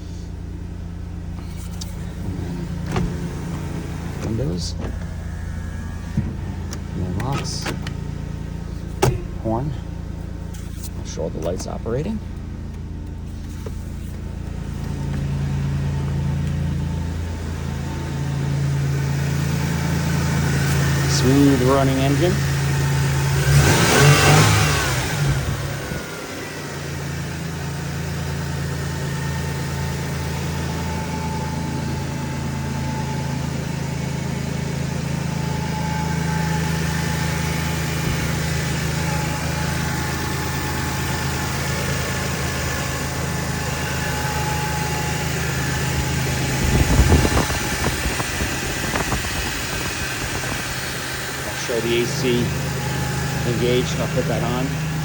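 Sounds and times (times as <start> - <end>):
car engine idling: 0.0 - 55.0
short thump: 6.0 - 8.0, 8.7 - 9.9.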